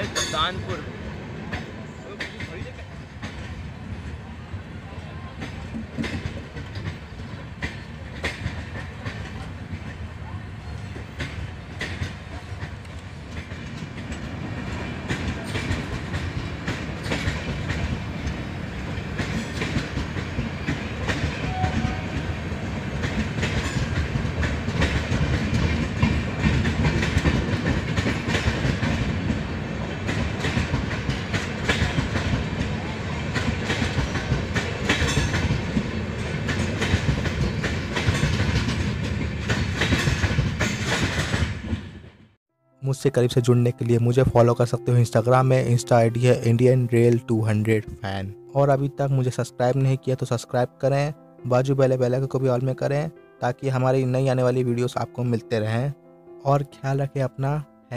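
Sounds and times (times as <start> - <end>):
train wheels clattering over rail joints: 1.5 - 3.7, 5.4 - 10.0, 10.7 - 42.2.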